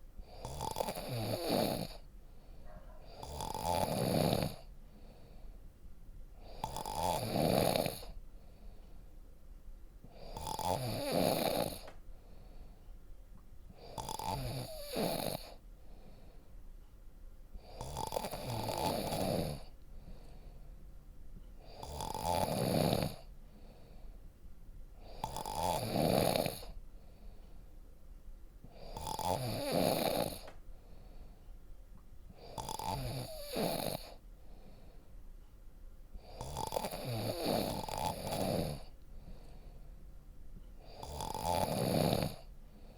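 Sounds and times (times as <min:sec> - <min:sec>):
person snoring: 0:00.3 - 0:02.0, 0:03.0 - 0:04.7, 0:06.4 - 0:08.2, 0:10.1 - 0:11.9, 0:13.8 - 0:15.6, 0:17.6 - 0:20.4, 0:21.6 - 0:23.9, 0:25.0 - 0:26.8, 0:28.7 - 0:30.5, 0:32.4 - 0:34.2, 0:36.2 - 0:39.7, 0:40.8 - 0:42.9.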